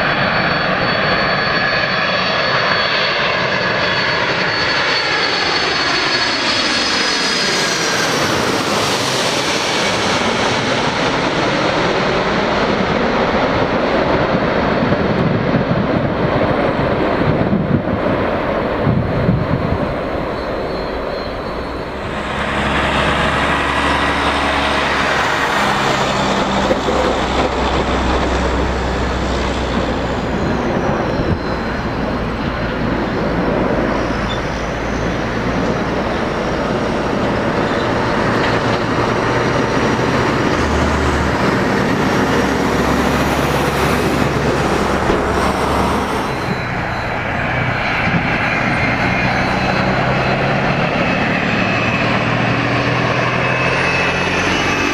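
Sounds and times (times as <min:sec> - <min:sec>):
jet engines humming and whining: 0:00.0 - 0:54.9.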